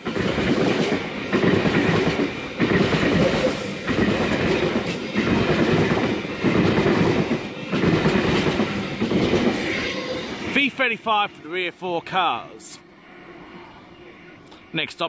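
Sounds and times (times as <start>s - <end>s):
train wheels rumbling and clacking: 0.0s - 11.0s.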